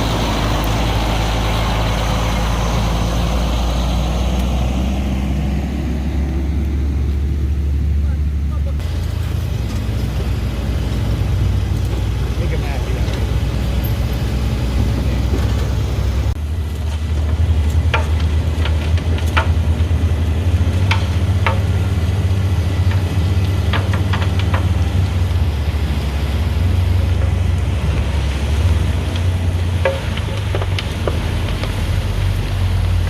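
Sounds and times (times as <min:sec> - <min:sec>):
heavy vehicle engine humming: 0:00.0 - 0:33.0
sharp clicks and rattles: 0:11.7 - 0:25.5.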